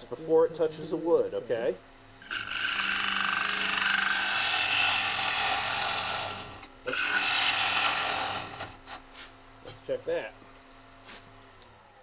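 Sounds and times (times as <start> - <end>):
gouge cutting wood on a lathe: 2.2 - 9.0.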